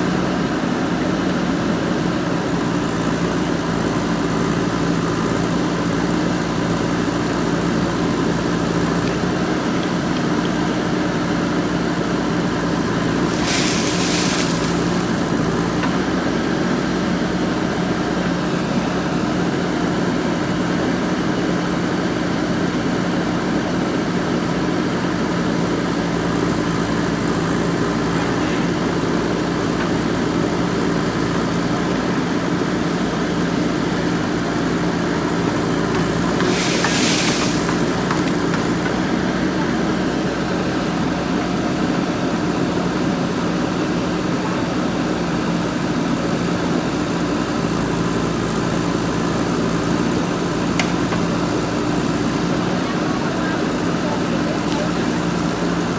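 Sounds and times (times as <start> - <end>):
diesel engine running: 0.0 - 55.9
brief hiss: 13.3 - 15.3, 36.4 - 38.1.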